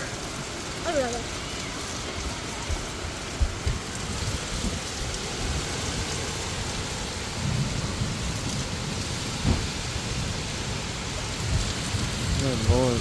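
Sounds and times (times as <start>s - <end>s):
heavy rain pouring: 0.0s - 13.0s
low thunder rumbling: 0.0s - 13.0s
sudden low thump: 9.4s - 9.8s.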